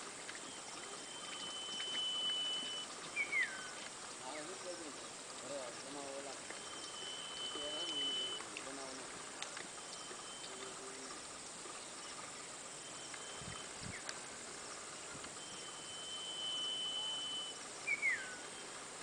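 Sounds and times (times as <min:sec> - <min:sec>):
outdoor background hiss: 0:00.0 - 0:19.0
thin high whistle: 0:00.4 - 0:03.8, 0:06.6 - 0:08.4, 0:09.8 - 0:10.8, 0:12.7 - 0:14.0, 0:15.4 - 0:18.7.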